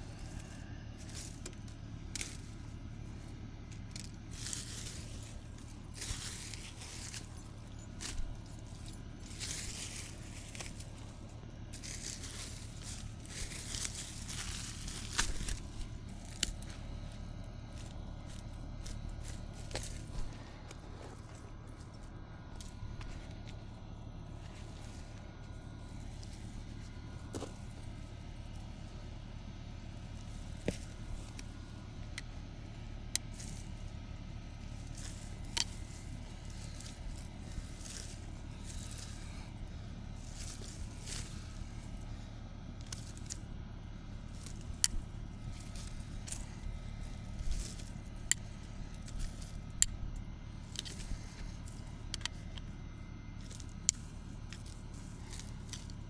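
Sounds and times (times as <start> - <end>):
plant stems rustling and tearing: 0.0 - 56.0
steady low rumble: 0.0 - 56.0
stem snapping: 11.7 - 16.8.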